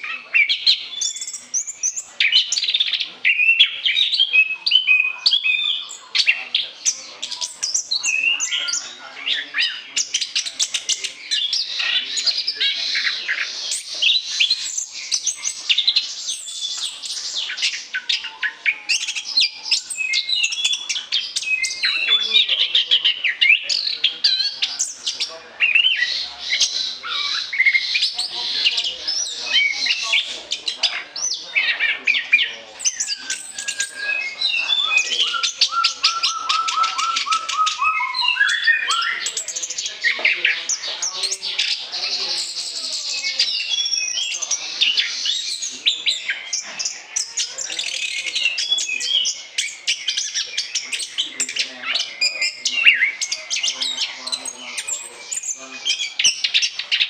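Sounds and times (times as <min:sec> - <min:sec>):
bird singing whistled phrases: 0:00.0 - 0:22.5, 0:32.2 - 0:40.2, 0:42.4 - 0:46.6.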